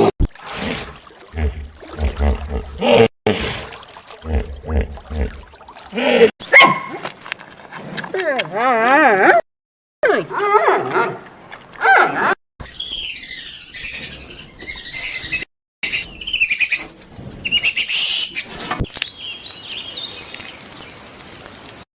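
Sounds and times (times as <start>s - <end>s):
small birds chirping: 12.6s - 21.8s.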